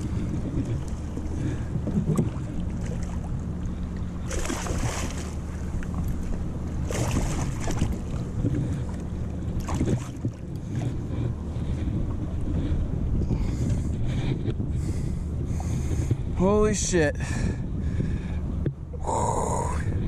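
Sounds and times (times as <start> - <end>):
water moving around kayak: 0.0 - 19.0
steady low hum: 0.0 - 20.0
wind on microphone: 0.0 - 20.0.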